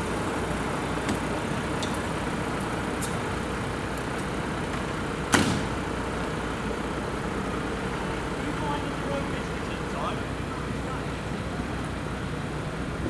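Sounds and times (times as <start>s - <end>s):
road traffic noise: 0.0s - 13.0s
door shutting knock: 5.3s - 5.8s.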